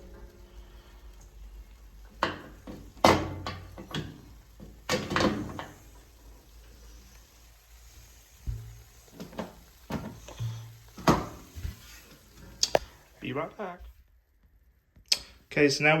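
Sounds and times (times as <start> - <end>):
sharp knocks and clatters: 2.2 - 5.8, 8.5 - 11.8.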